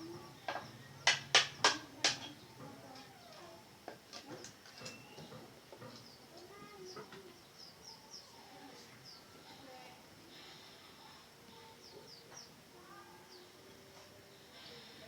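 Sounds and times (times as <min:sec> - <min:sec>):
faint high bird chirps: 0:04.8 - 0:05.4.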